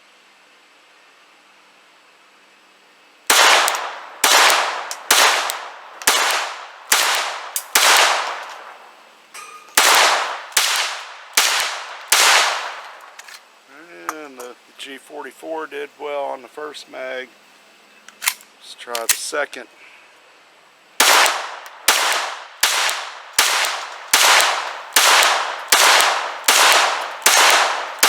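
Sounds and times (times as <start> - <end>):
pistol shots with ringing tail: 3.3 - 13.2, 21.0 - 28.0.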